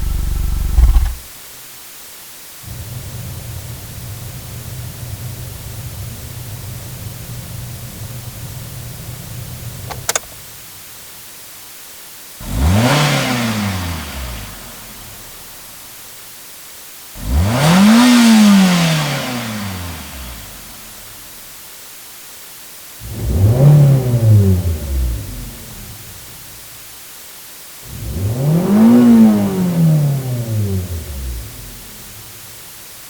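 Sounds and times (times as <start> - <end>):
car engine revving: 0.0 - 1.2, 12.4 - 15.1, 17.2 - 20.0, 27.9 - 32.0
low steady hiss: 0.0 - 33.0.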